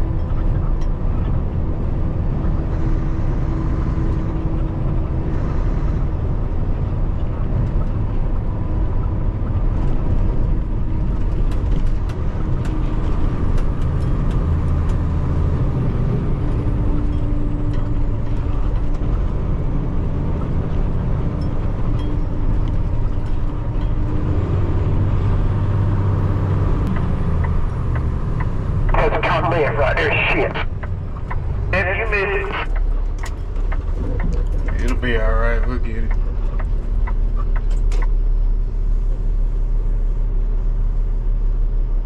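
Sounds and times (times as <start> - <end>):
diesel truck engine running: 0.0 - 42.0.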